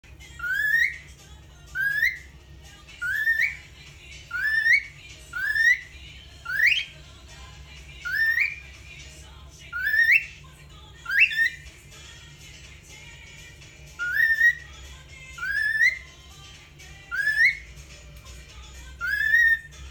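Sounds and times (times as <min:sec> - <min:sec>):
cockatiel whistling: 0:00.2 - 0:07.0, 0:08.0 - 0:08.8, 0:09.7 - 0:10.4, 0:11.0 - 0:11.7, 0:13.9 - 0:16.2, 0:17.0 - 0:17.8, 0:19.0 - 0:19.9.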